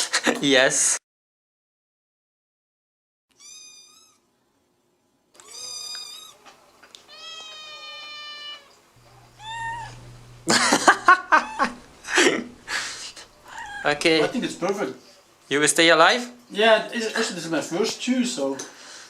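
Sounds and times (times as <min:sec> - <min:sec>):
cat meowing: 0:03.3 - 0:04.3, 0:05.4 - 0:10.4, 0:11.1 - 0:14.6
cat rough outburst: 0:07.1 - 0:14.6.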